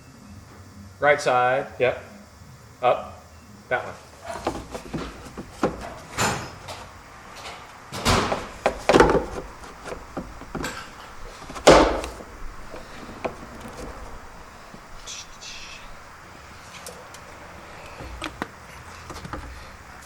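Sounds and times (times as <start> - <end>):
tools and parts knocking: 4.2 - 6.8, 7.4 - 14.8, 18.0 - 19.7.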